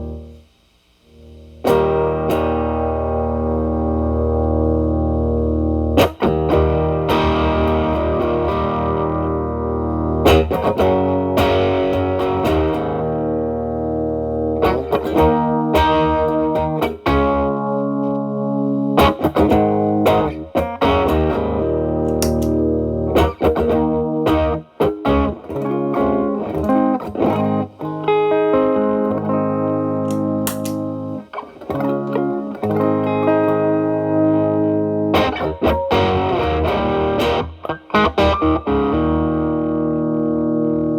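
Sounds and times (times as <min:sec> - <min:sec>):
overdriven electric guitar: 0:00.0 - 0:40.9.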